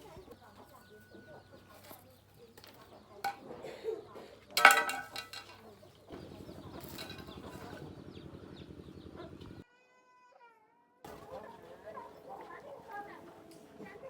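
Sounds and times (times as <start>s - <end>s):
metal tools clinking: 4.6s - 5.8s, 6.8s - 7.8s.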